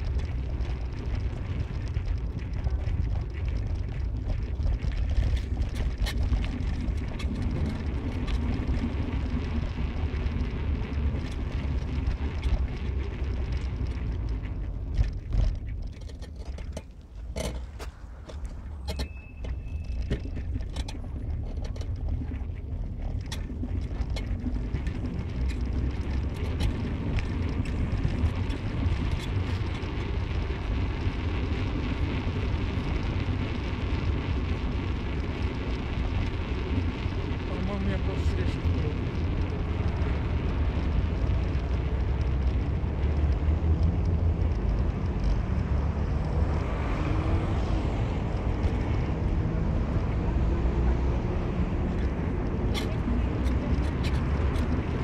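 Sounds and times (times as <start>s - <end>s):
car engine and road rumble: 0.0s - 55.0s
short high beep: 19.0s - 20.0s.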